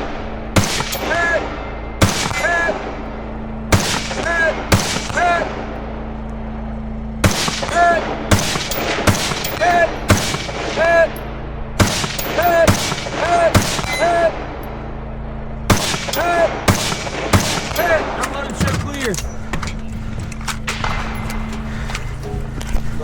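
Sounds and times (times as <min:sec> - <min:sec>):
gunshots: 0:00.0 - 0:03.0, 0:03.7 - 0:05.8, 0:07.2 - 0:11.2, 0:11.8 - 0:14.6, 0:15.7 - 0:19.1, 0:20.6 - 0:21.5
bullet ringing on steel target: 0:08.3 - 0:10.5, 0:11.8 - 0:13.0.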